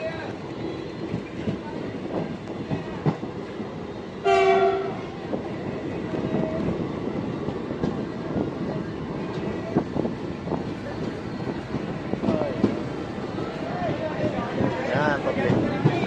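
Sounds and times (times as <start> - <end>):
train horn blast: 4.2 - 5.0.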